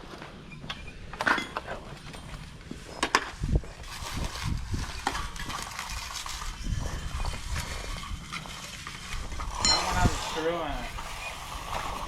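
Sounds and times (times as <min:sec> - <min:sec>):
hand tools scraping wet concrete: 0:02.9 - 0:12.0.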